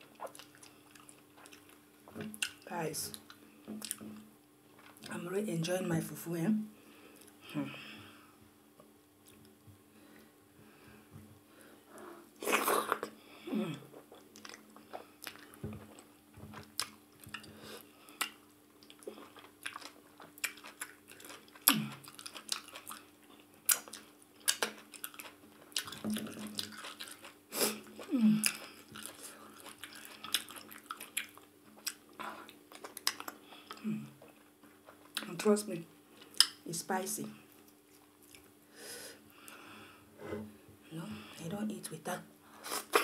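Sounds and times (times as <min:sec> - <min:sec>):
wet chewing: 0:00.1 - 0:05.1, 0:14.0 - 0:35.4, 0:36.1 - 0:36.6, 0:37.5 - 0:38.5.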